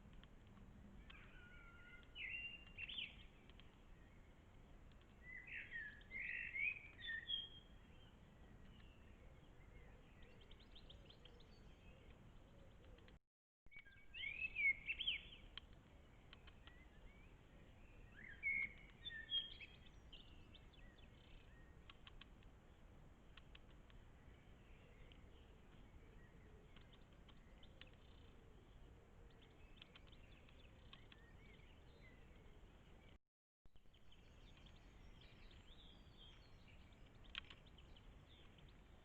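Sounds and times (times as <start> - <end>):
light ticks: 0.0 - 1.3, 2.0 - 3.9, 4.8 - 6.2, 15.4 - 16.9, 21.8 - 24.1, 25.0 - 26.0, 26.7 - 28.4, 29.3 - 31.6, 36.9 - 38.9
songbirds chirping: 0.0 - 33.2, 33.8 - 39.0.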